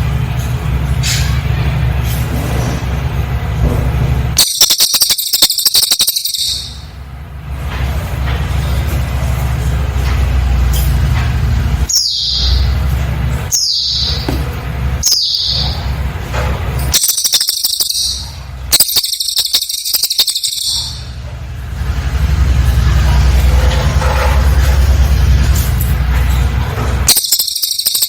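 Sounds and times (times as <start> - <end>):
bird trilling: 4.4 - 7.0, 11.9 - 12.8, 13.5 - 16.0, 16.9 - 21.2, 27.1 - 28.0
bird whistling notes: 4.4 - 7.0, 11.9 - 12.8, 13.5 - 16.0, 16.9 - 21.1, 27.1 - 28.0.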